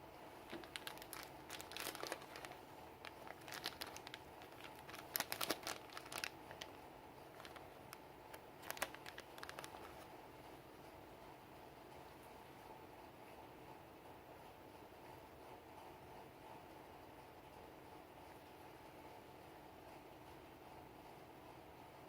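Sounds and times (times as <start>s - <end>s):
wrapper crinkling: 0.4s - 10.1s.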